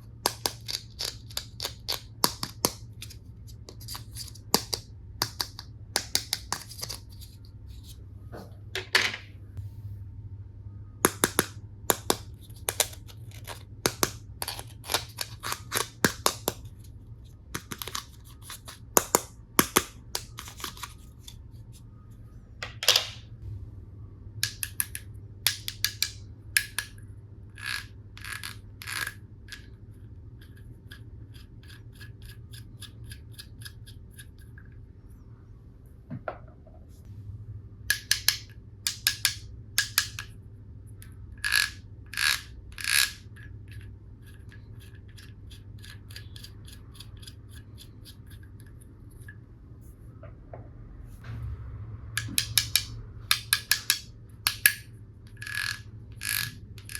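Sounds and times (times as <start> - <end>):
plastic toy pieces clicking: 0.2 - 3.2, 3.8 - 7.1, 11.1 - 16.7, 17.5 - 21.0, 24.4 - 27.0, 27.6 - 29.7, 37.9 - 40.3, 41.4 - 43.3, 52.2 - 56.9.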